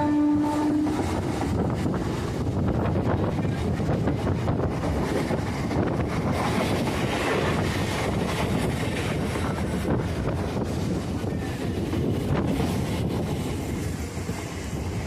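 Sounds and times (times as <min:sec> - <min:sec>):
train running on track: 0:00.0 - 0:15.0
wind buffeting microphone: 0:00.0 - 0:15.0.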